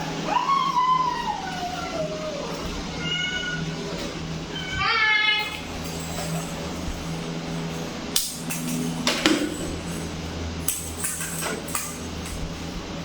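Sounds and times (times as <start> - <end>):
steady low hum: 0.0 - 13.0
sharp knocks and clinks: 5.4 - 12.6.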